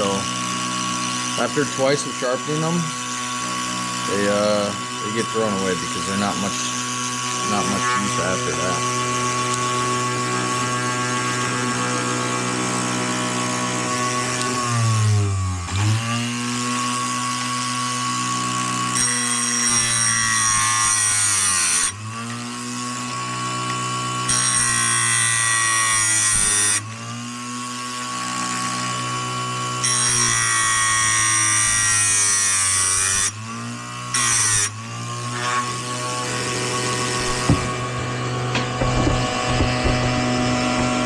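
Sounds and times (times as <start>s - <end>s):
motor hum: 0.0s - 19.6s, 32.6s - 41.0s.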